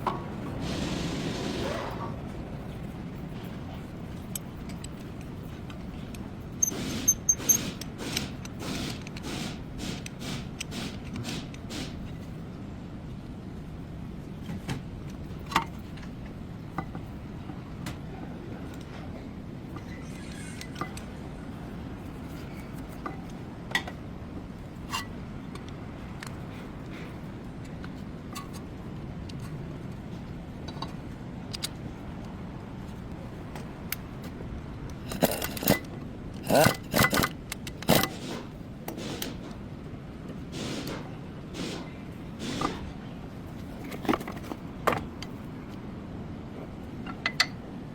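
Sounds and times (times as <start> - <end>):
metal tools clinking and scraping: 35.0 - 39.4.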